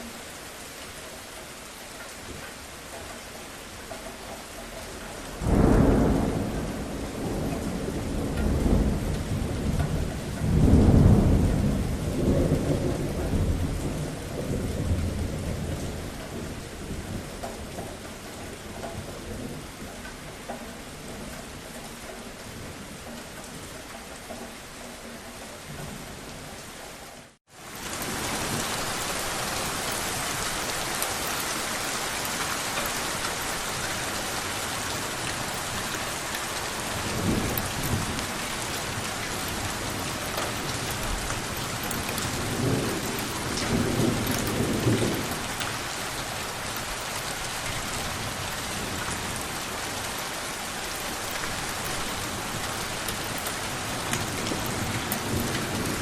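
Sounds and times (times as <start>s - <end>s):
steady rain falling: 0.0s - 56.0s
thunder rumbling low: 5.4s - 17.8s.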